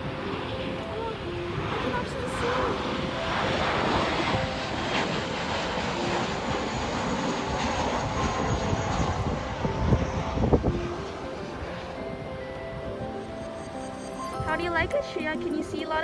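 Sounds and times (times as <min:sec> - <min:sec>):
airplane flying over: 0:00.0 - 0:16.0.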